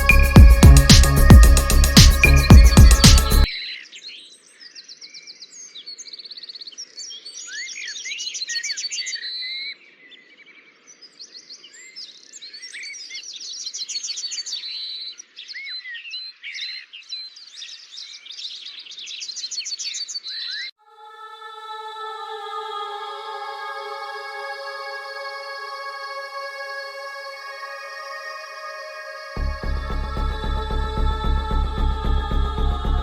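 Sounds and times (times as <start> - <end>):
music: 0.0 - 3.5, 22.7 - 33.0
songbirds chirping and singing: 0.0 - 20.7, 22.2 - 33.0.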